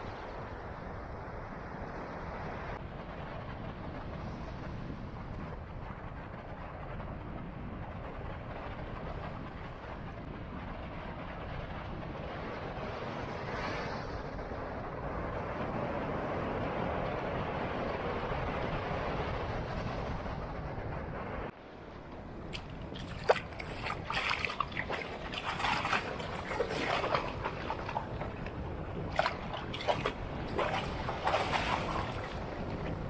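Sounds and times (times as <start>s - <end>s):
wind: 0.0s - 33.0s
shallow water splashing and sloshing: 22.5s - 33.0s
surf: 22.5s - 33.0s.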